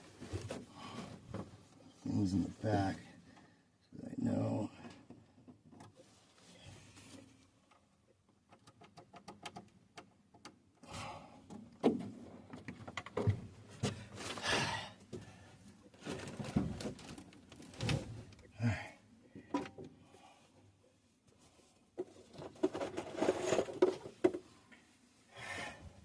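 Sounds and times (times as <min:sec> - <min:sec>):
knocks and clunks of objects: 0:11.5 - 0:14.4, 0:16.0 - 0:18.4, 0:19.3 - 0:20.0, 0:22.0 - 0:24.5
rustling: 0:22.3 - 0:23.8.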